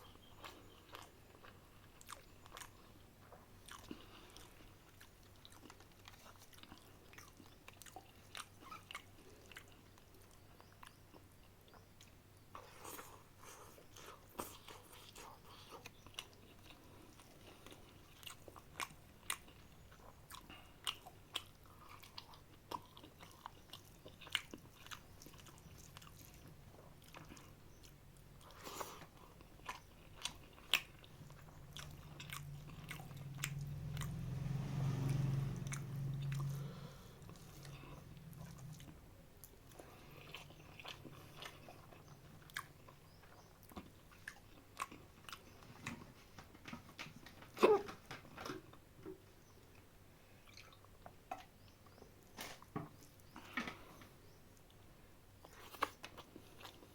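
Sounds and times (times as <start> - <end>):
person chewing food: 0.0 - 56.9
low rumble: 31.7 - 38.9.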